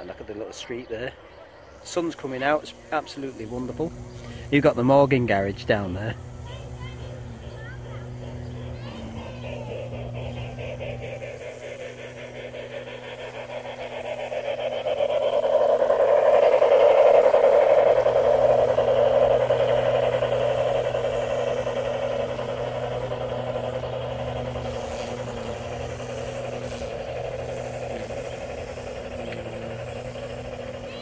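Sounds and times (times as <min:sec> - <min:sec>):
low steady hum: 0:00.0 - 0:31.0
model train rattling on track: 0:00.0 - 0:31.0.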